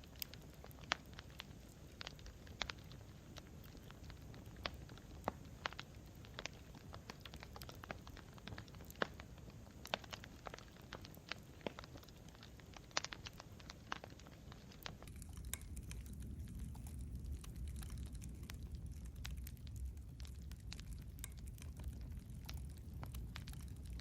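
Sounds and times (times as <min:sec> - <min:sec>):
campfire crackling: 0:00.0 - 0:24.0
low steady rumble: 0:14.7 - 0:24.0.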